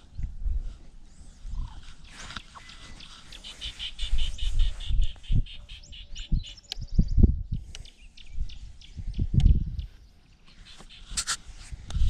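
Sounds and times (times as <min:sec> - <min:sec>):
bird chirping rapidly: 0:01.6 - 0:07.2, 0:07.8 - 0:11.4.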